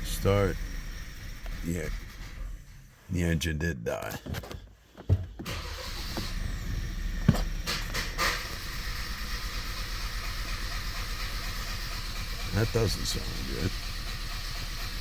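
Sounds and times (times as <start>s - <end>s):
starter motor cranking: 0.0s - 2.9s, 5.4s - 15.0s
thump: 7.2s - 8.0s.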